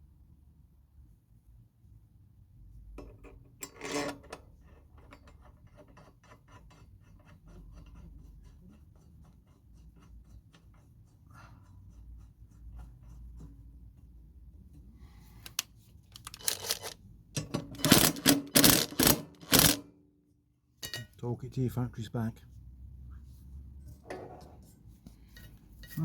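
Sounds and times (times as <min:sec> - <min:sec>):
socket ratchet clicking: 0:15.4 - 0:17.0, 0:17.8 - 0:19.8
metal clatter: 0:16.2 - 0:19.8.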